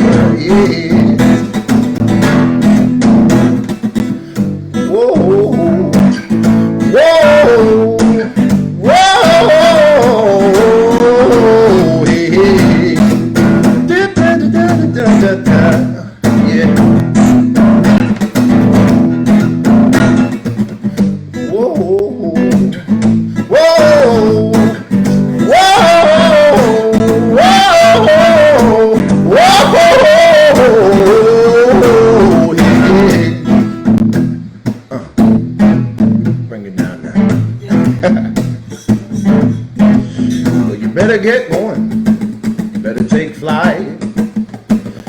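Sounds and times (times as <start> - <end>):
person singing wordlessly: 0.0 - 1.9, 4.7 - 17.0, 21.3 - 34.0, 36.6 - 42.0
acoustic guitar strumming: 0.0 - 45.0.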